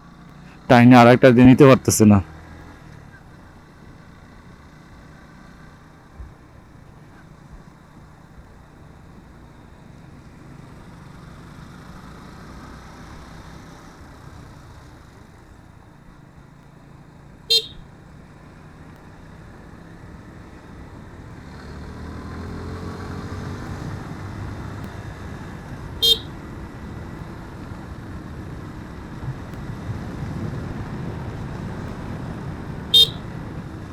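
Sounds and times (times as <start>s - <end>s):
road and wind noise: 0.0s - 33.9s
short horn beep: 17.5s - 17.8s, 26.0s - 26.4s, 32.9s - 33.2s
motorcycle engine accelerating: 19.3s - 33.9s.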